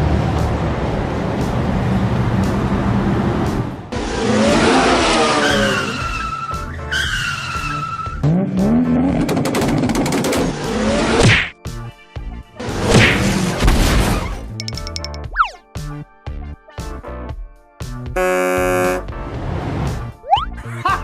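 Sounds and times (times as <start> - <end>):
music: 0.3 - 4.7, 5.8 - 21.0
tyre-squeal whistles: 5.4 - 8.2.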